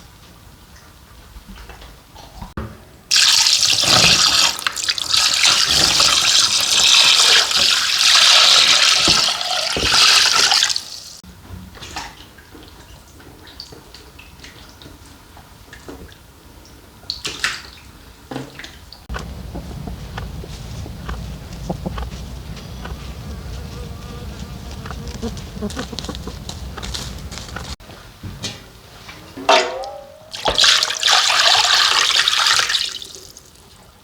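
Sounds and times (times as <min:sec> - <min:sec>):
brine pouring over fish: 0:03.1 - 0:10.8
faint knocks: 0:19.1 - 0:27.8.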